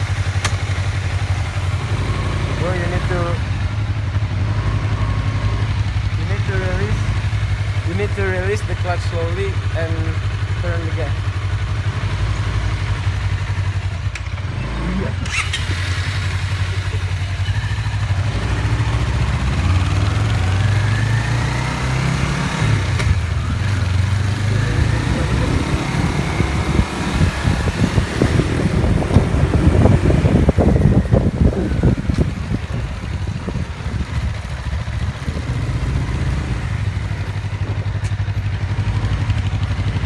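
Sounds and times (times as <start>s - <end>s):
motorcycle engine pulling away: 0.0s - 40.0s.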